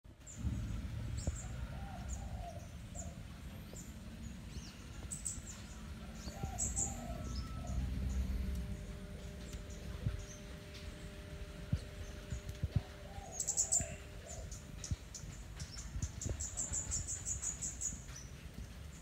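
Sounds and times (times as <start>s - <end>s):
steady low rumble: 0.0s - 19.0s
birds chirping: 0.1s - 19.0s.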